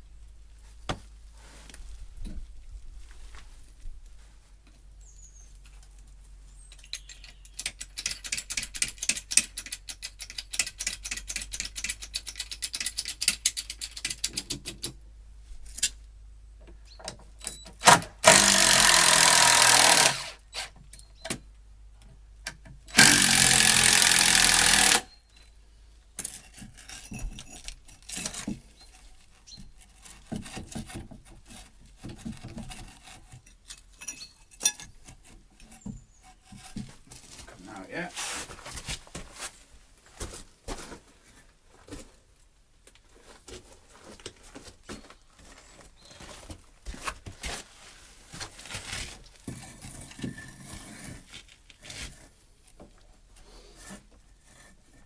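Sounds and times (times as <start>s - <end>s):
cordless drill-driver running: 18.2s - 20.4s, 22.9s - 25.1s
knocks of timber and tools: 29.5s - 37.5s.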